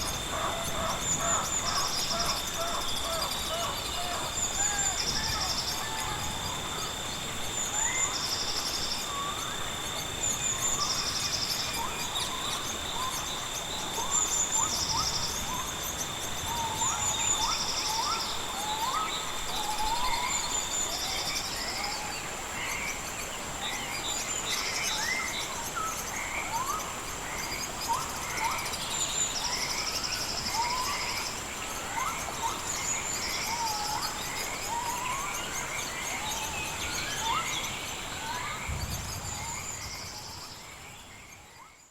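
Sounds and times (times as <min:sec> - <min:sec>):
insect trilling: 0:00.0 - 0:23.0
high-pitched insect drone: 0:00.0 - 0:41.9
steady insect tone: 0:00.0 - 0:41.9.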